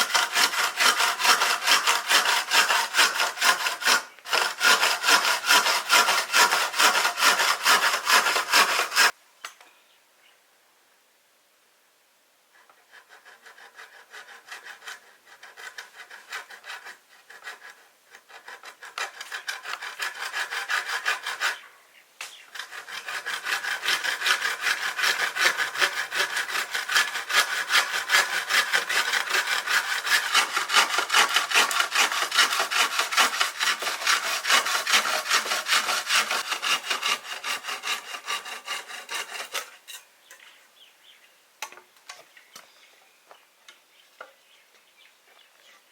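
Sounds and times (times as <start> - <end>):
hand saw cutting wood: 0.0 - 9.2, 12.7 - 21.6, 22.5 - 40.0.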